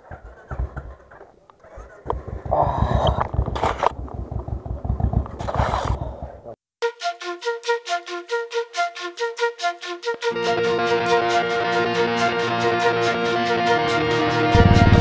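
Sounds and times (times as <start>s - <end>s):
music with flute and strings: 6.8s - 15.0s
motorcycle engine running: 14.5s - 15.0s.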